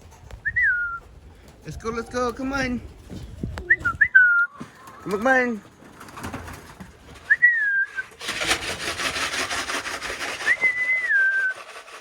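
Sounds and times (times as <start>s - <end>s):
person whistling sliding notes: 7.3s - 8.1s, 10.4s - 11.7s
loud steady rattle: 8.1s - 12.0s.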